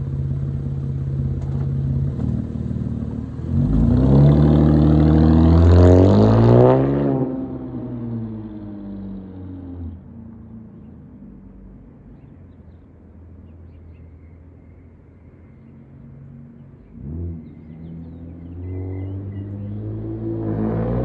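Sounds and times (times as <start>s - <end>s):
car exhaust rumble driving away: 0.0s - 12.3s
engine revving: 2.9s - 8.3s, 17.0s - 21.0s
bird chirps: 12.1s - 20.0s.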